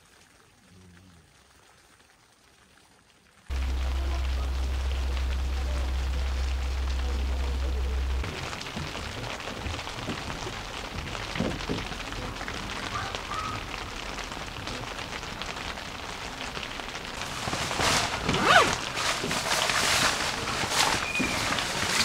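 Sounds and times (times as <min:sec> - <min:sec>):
rain on tent fabric: 0:00.0 - 0:22.0
rustling and knocks: 0:07.9 - 0:12.6, 0:17.2 - 0:22.0.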